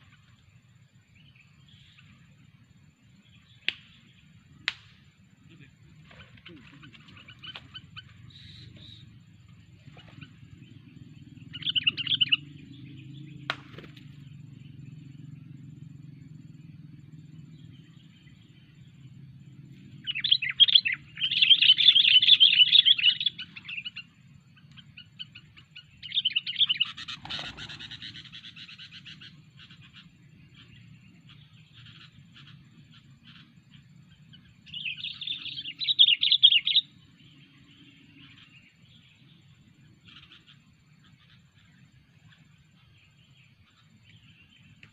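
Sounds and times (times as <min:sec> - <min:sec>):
bird harsh chattering chirps: 0:05.6 - 0:09.1, 0:11.3 - 0:13.9, 0:20.0 - 0:24.1, 0:24.8 - 0:33.5.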